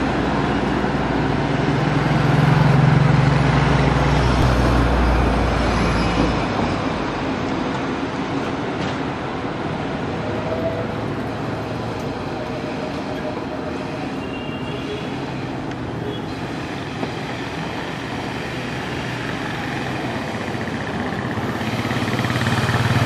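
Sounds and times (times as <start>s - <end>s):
wheel-on-rail noise: 5.3s - 23.0s.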